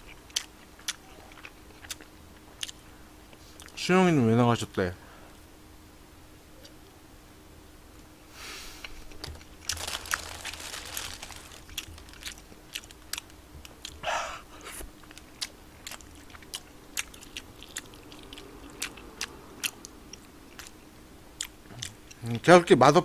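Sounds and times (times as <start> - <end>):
chewing with wet mouth clicks: 0.0 - 3.8, 11.7 - 14.0, 15.0 - 22.4.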